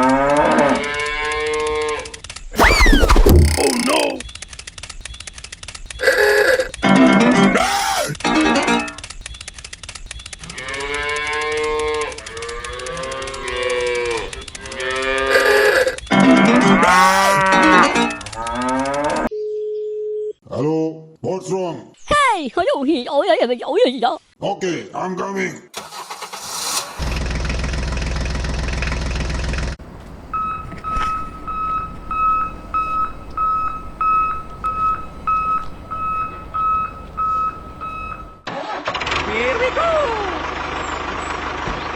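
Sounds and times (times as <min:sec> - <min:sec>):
cow mooing: 0:00.0 - 0:02.0, 0:10.5 - 0:19.3
vehicle engine running: 0:27.0 - 0:38.4, 0:39.1 - 0:41.9
reversing beeper: 0:30.3 - 0:38.5.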